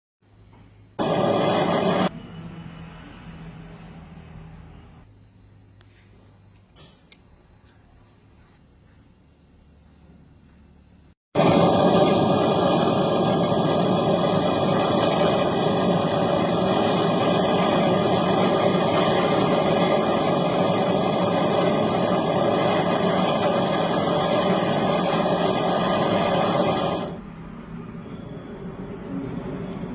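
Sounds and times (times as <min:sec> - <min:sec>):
mechanical running hum: 0:10.5 - 0:29.9.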